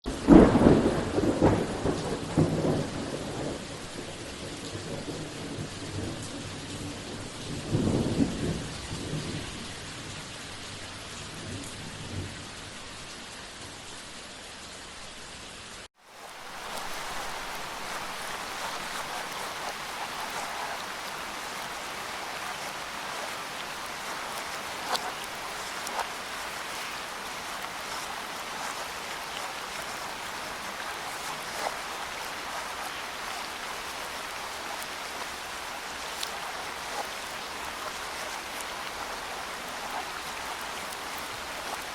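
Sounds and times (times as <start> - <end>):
steady rain falling: 0.0 - 41.9
thunder rumbling: 0.1 - 10.5, 16.5 - 34.7.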